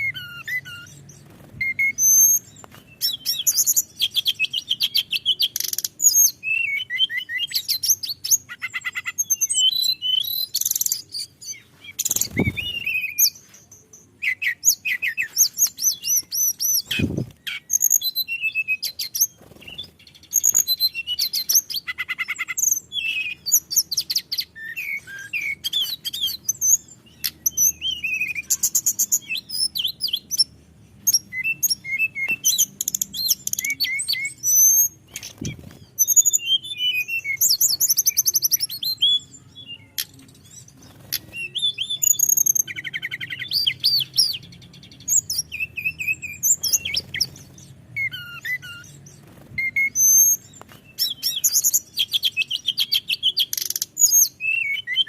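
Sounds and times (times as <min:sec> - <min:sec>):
flycatcher singing: 0:00.0 - 0:55.0.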